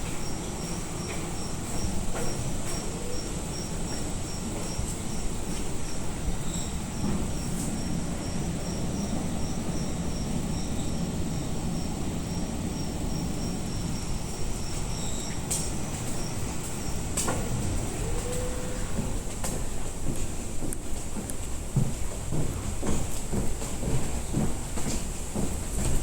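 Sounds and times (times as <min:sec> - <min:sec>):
insect chirping: 0:00.2 - 0:18.9.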